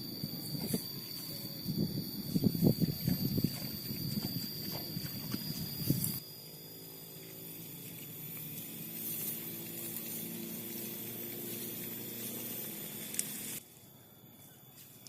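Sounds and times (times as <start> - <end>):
hiss: 7.1 - 13.6.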